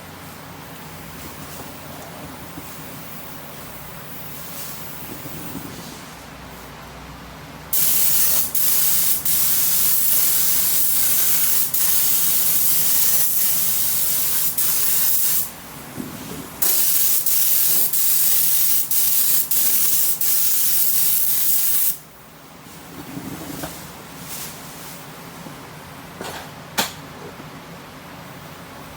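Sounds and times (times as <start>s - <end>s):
paint spray gun hissing: 7.8s - 15.6s, 16.6s - 22.0s.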